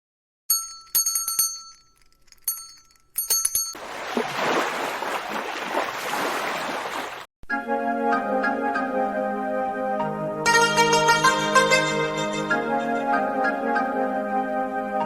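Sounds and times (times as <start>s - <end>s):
small bell ringing: 0.5s - 3.8s.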